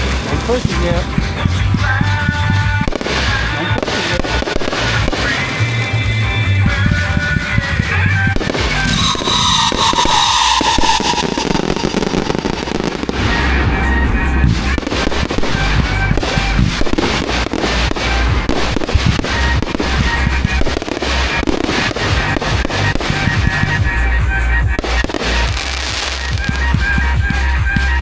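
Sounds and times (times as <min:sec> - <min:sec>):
fireworks bangs and crackles: 0:00.0 - 0:28.0
music with heavy bass: 0:00.0 - 0:28.0
firework hissing shriek: 0:02.9 - 0:05.9, 0:08.4 - 0:26.7.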